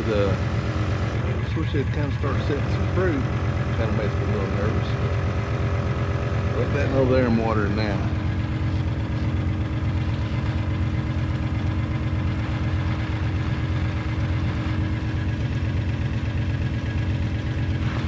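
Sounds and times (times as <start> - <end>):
farm vehicle engine running: 0.0 - 18.0.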